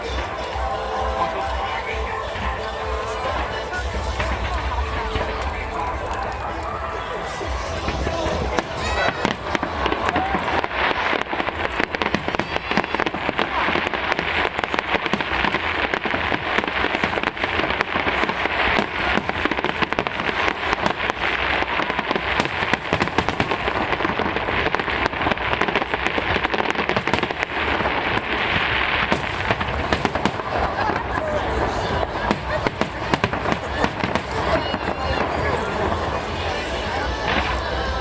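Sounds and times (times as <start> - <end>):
fireworks crackling: 0.0 - 38.0.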